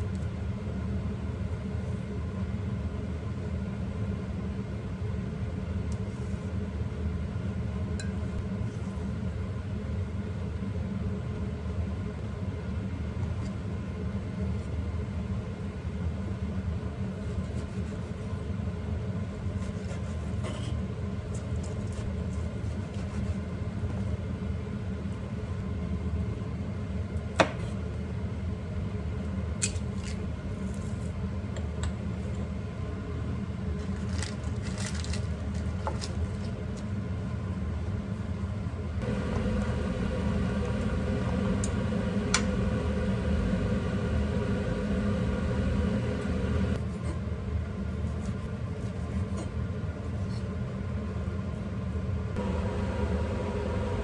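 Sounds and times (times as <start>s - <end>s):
kitchen motor humming: 39.0s - 46.8s, 52.4s - 54.0s.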